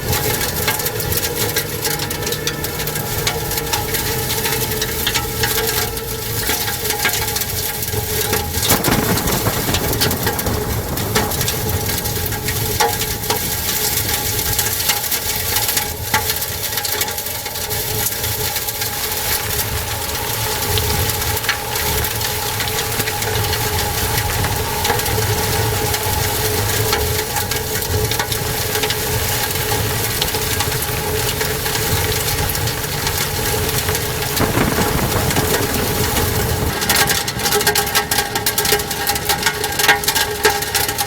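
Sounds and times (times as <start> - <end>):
wind roaring: 8.5 - 14.0, 30.2 - 38.2
debris knocking and cracking: 8.6 - 13.4, 33.8 - 37.1.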